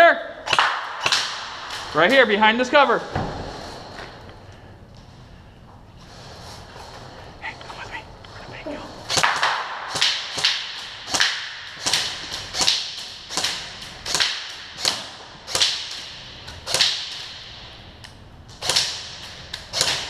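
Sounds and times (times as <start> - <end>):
airsoft gun shots: 0.4 - 1.8, 9.1 - 17.5.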